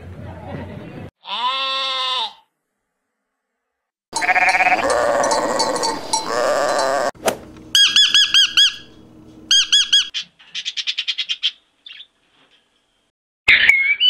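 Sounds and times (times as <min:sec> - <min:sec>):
sheep bleating: 0:01.2 - 0:02.5, 0:04.2 - 0:07.2.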